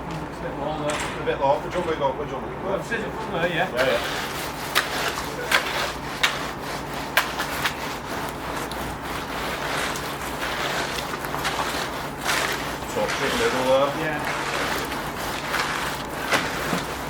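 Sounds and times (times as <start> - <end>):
tamp scraping wet concrete: 3.3 - 17.0.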